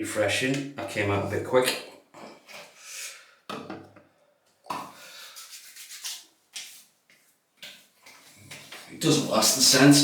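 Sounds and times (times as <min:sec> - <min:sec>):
hands rubbing skin: 0:04.8 - 0:08.9.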